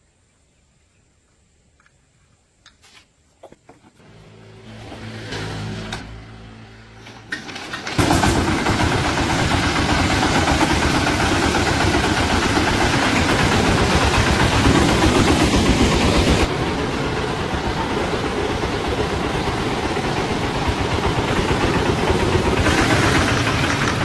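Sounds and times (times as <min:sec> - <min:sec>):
engine running loud: 0:04.0 - 0:24.0
engine cranking: 0:07.0 - 0:24.0.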